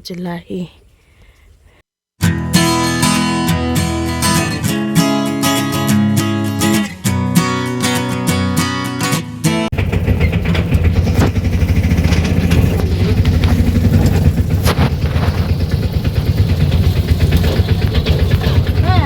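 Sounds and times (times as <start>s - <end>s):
guitar strum: 2.2s - 9.7s
vehicle engine running: 9.7s - 19.0s.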